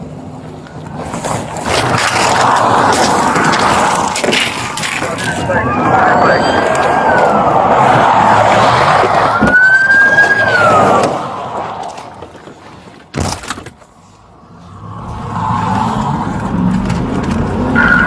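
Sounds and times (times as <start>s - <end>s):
engine and road noise: 0.0s - 18.0s
siren wailing: 5.2s - 12.0s, 17.6s - 18.0s.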